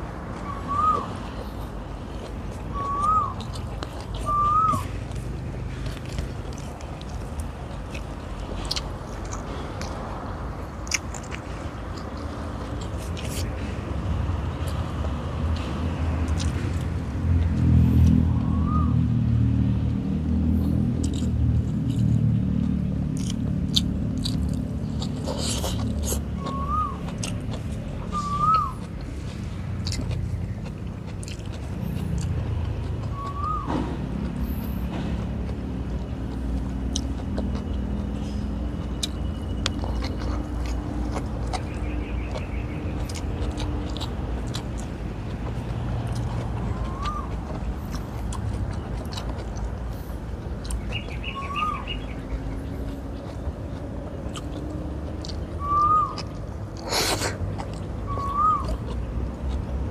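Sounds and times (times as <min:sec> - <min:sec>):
person chewing and lip smacking: 0:00.2 - 0:18.7, 0:19.9 - 0:59.9
bird whistling: 0:00.4 - 0:01.2, 0:02.7 - 0:03.4, 0:04.2 - 0:04.9, 0:18.3 - 0:19.0, 0:26.4 - 0:27.1, 0:28.0 - 0:28.8, 0:33.1 - 0:33.8, 0:46.7 - 0:47.3, 0:50.9 - 0:52.3, 0:55.5 - 0:56.3, 0:58.0 - 0:58.8.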